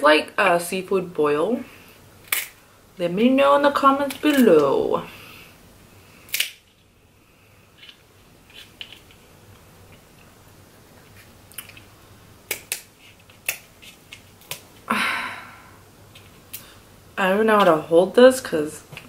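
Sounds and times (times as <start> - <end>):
crab shell cracking: 2.2 - 2.6, 6.3 - 6.7, 12.5 - 14.8.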